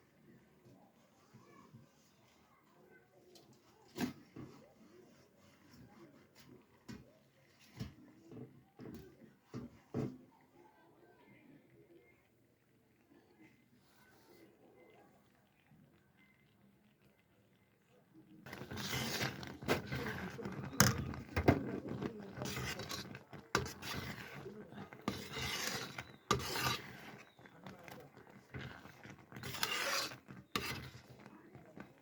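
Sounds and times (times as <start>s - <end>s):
rough scraping and rubbing: 18.5s - 32.0s.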